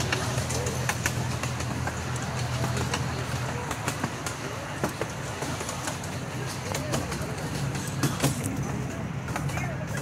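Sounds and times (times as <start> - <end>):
cars clicking and rattling on track: 0.0 - 10.0
faint rider voices: 0.0 - 10.0
ride train engine hum: 0.0 - 10.0.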